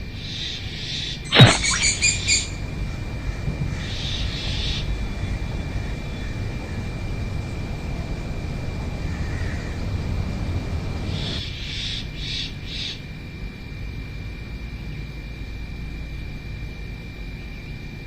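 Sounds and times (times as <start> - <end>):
bird calling: 1.3 - 2.7.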